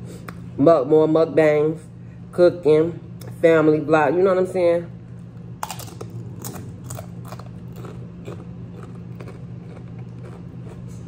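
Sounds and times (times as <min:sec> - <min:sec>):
crunchy chip being chewed: 0:05.6 - 0:11.0.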